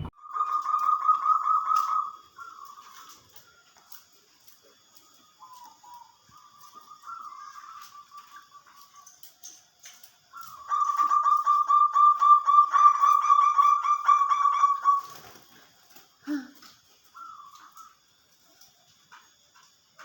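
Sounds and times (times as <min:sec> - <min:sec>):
dove cooing: 0:00.2 - 0:03.3, 0:04.8 - 0:08.7, 0:10.4 - 0:15.4.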